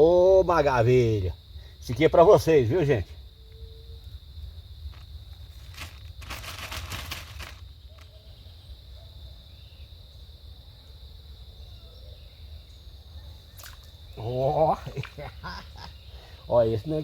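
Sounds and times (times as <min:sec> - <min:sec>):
insects chirring: 0:00.0 - 0:17.0
rustling burst: 0:05.6 - 0:07.6.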